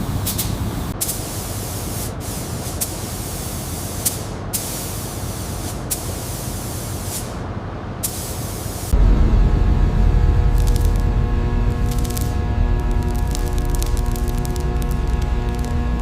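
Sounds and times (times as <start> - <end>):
spraying hiss: 0.0 - 7.4, 8.0 - 9.0.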